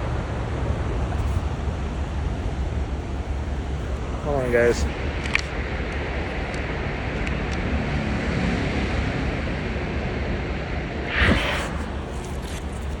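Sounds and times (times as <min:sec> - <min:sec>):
wind on microphone: 0:11.0 - 0:13.0.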